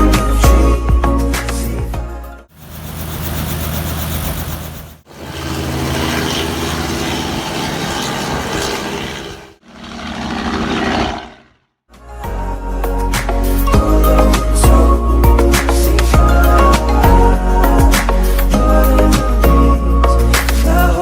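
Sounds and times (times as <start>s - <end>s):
outboard boat motor running: 2.8s - 11.6s.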